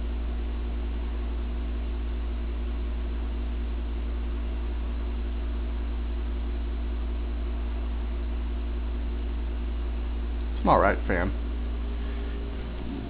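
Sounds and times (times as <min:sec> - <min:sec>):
ceiling fan motor hum: 0:00.0 - 0:13.0
steady low rumble: 0:07.4 - 0:13.0.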